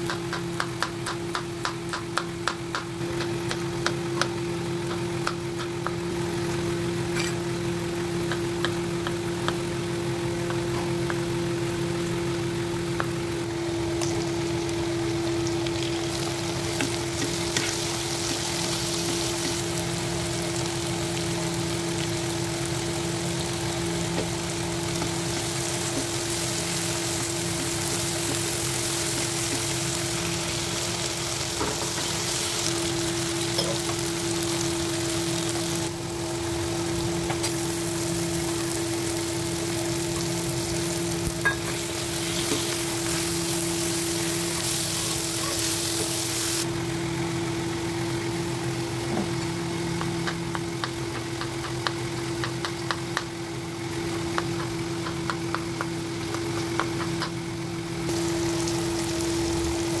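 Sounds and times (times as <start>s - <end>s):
spatula tapping pan: 0.0s - 6.0s
food sizzling in oil: 3.4s - 46.7s, 58.1s - 60.0s.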